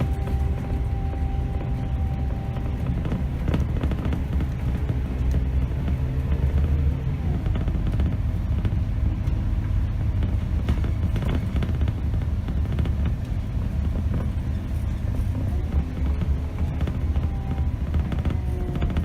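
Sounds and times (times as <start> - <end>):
diesel bus engine rumble: 0.0 - 19.0.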